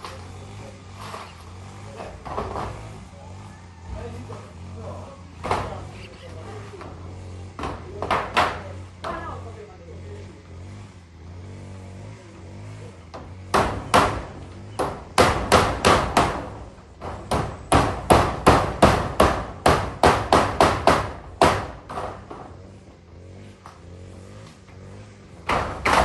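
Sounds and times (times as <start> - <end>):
hammer driving nails: 7.6 - 9.2, 13.1 - 22.6, 25.4 - 26.0.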